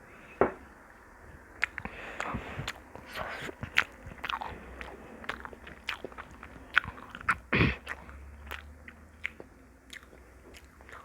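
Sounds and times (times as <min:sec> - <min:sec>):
person chewing and biting food: 0:01.6 - 0:11.0.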